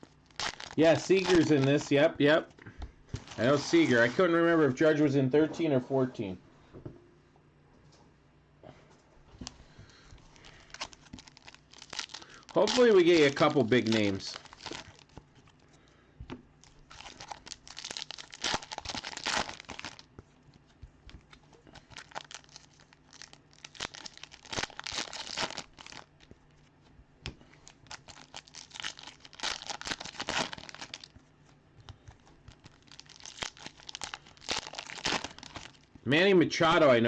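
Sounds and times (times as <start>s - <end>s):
wrappers crinkling and tearing: 0.0s - 1.9s, 10.3s - 15.6s, 16.6s - 26.3s, 27.5s - 31.2s, 32.1s - 36.0s
cards rustling: 0.4s - 2.0s, 3.1s - 4.2s, 10.3s - 15.6s.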